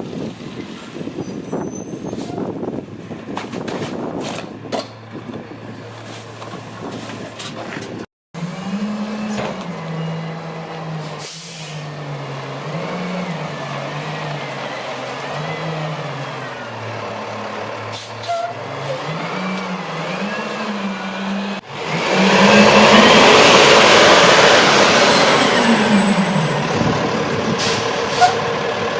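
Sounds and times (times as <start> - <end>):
truck engine revving: 8.4 - 28.9
loud reversing whine: 19.4 - 27.4.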